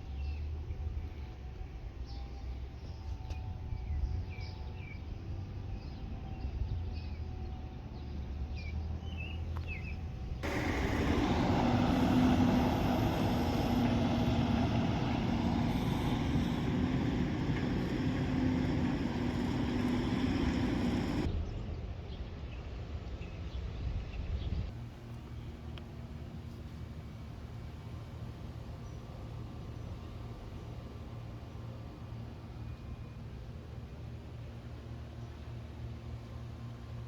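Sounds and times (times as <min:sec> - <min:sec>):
steady engine drone with rushing: 0:00.0 - 0:21.6, 0:24.7 - 0:37.0
birds chirping: 0:09.2 - 0:21.3
low hum: 0:10.4 - 0:21.3.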